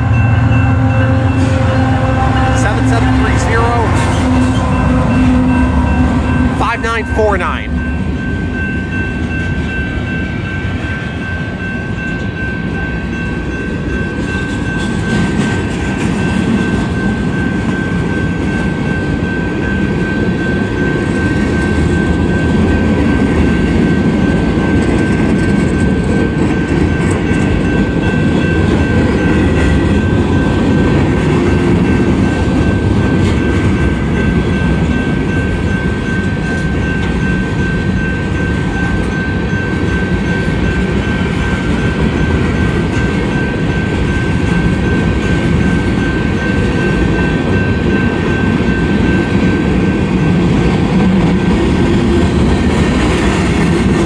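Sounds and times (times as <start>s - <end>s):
steady high tone: 0.0s - 14.1s
freight train wheels rumbling: 0.0s - 54.0s.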